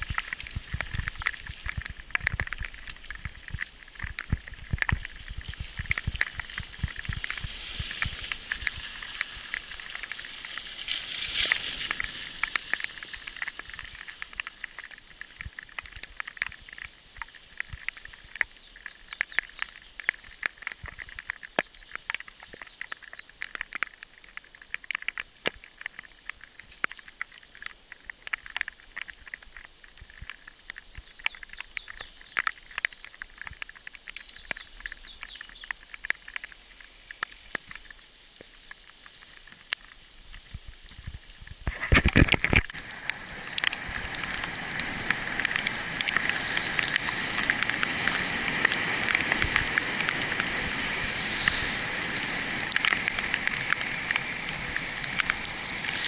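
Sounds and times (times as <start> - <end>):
bicycle tyres crunching on gravel: 0.0 - 56.0.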